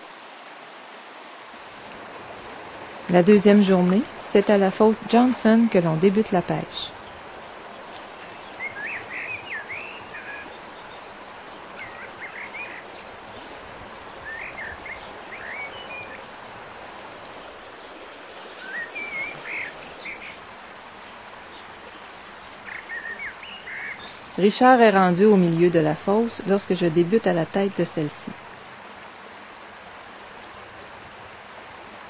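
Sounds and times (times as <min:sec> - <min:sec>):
river water rushing: 0:00.0 - 0:32.0
songbird singing: 0:02.4 - 0:28.6.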